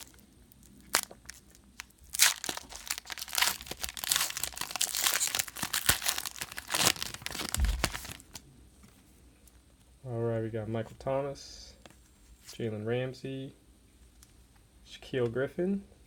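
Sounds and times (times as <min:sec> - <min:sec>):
plastic wrapper tearing and crinkling: 0:00.0 - 0:08.4
dull low bump: 0:07.5 - 0:08.1.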